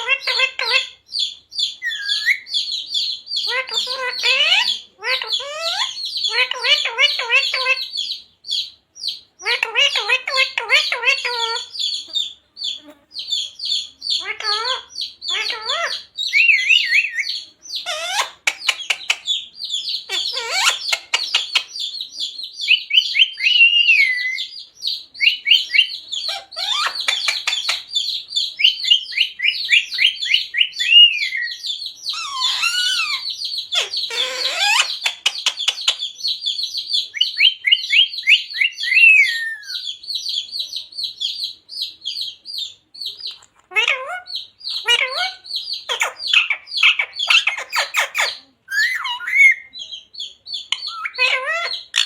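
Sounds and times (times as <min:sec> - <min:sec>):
parrot chattering: 0:00.0 - 0:01.0, 0:01.8 - 0:08.2, 0:09.4 - 0:22.0, 0:25.2 - 0:36.4, 0:42.6 - 0:49.9, 0:50.5 - 0:52.0
parrot squawks: 0:00.0 - 0:01.0, 0:01.8 - 0:02.6, 0:03.4 - 0:08.0, 0:09.4 - 0:12.8, 0:13.8 - 0:21.8, 0:25.2 - 0:36.0, 0:37.1 - 0:39.9, 0:42.6 - 0:49.8, 0:50.7 - 0:52.0.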